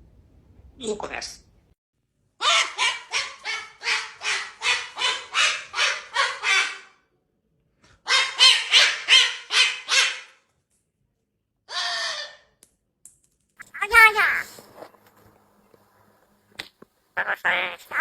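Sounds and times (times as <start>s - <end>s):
dog barking: 2.4s - 7.0s, 8.0s - 10.4s.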